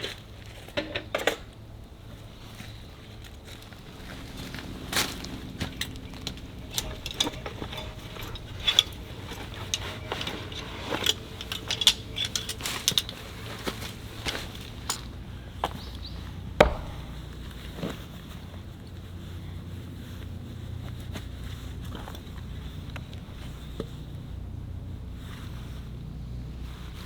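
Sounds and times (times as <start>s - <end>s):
knocks and clicks of handling: 5.0s - 18.0s.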